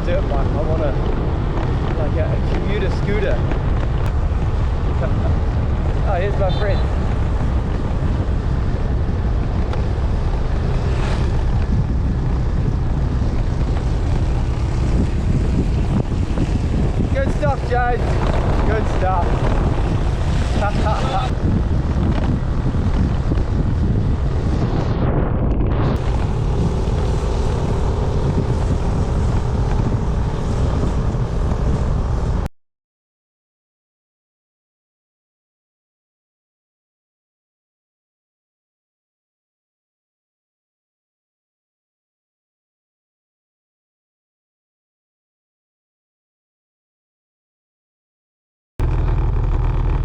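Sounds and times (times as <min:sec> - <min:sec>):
road noise: 0:00.0 - 0:32.5, 0:48.8 - 0:50.0
wind buffeting microphone: 0:00.0 - 0:32.5.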